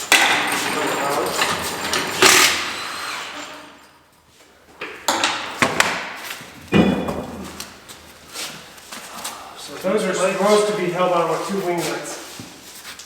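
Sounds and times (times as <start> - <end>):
sharp metal knocks and clanks: 0.0 - 2.8, 5.1 - 7.5
tools scraping metal: 0.0 - 3.6.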